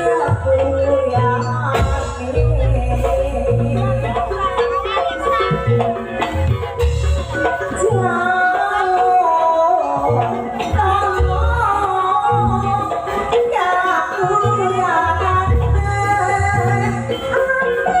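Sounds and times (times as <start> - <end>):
person singing: 0.0 - 18.0.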